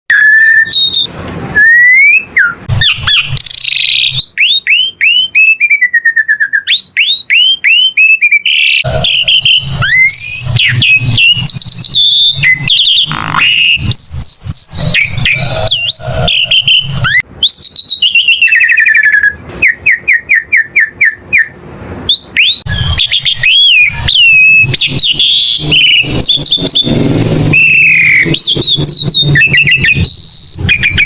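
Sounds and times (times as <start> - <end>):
starling singing whistled notes: 0.1 - 31.0
harsh scratchy bird chatter: 8.8 - 17.2, 22.6 - 31.0.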